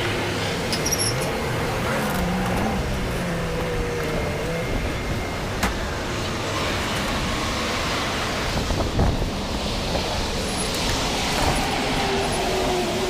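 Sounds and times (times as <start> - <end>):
car wash water spray rushing: 6.5 - 13.0.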